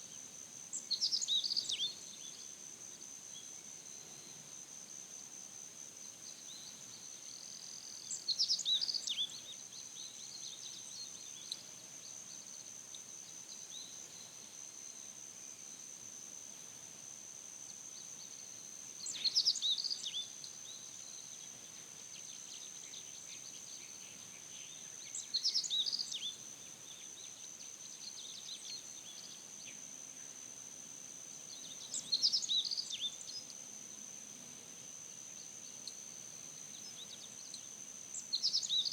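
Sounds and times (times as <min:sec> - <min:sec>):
bird chirping song: 0:31.5 - 0:33.6.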